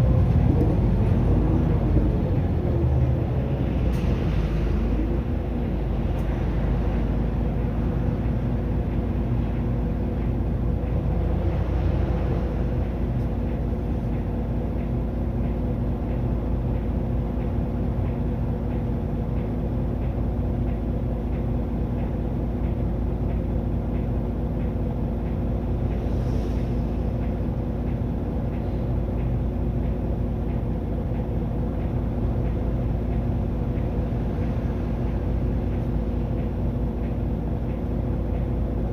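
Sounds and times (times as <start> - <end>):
bus diesel engine running: 0.0 - 38.9
road rumble: 0.0 - 38.9
faint regular ticking: 27.1 - 38.9.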